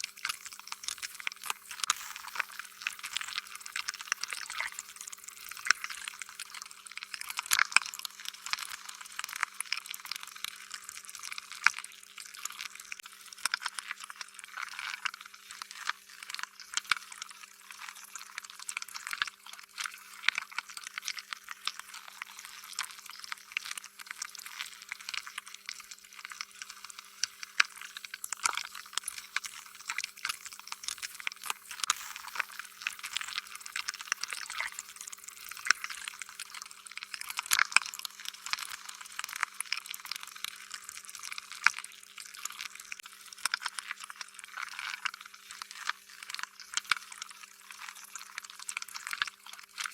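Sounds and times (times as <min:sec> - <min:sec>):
faint steady hum: 0:00.0 - 0:07.3, 0:22.0 - 0:39.0.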